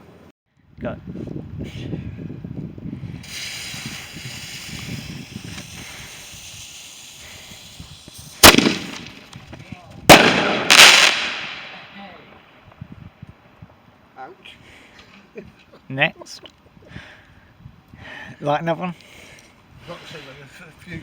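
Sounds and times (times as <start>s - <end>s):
firework fizzing: 3.2s - 11.8s
crackling burst: 3.2s - 12.0s
firework bangs: 3.2s - 12.0s.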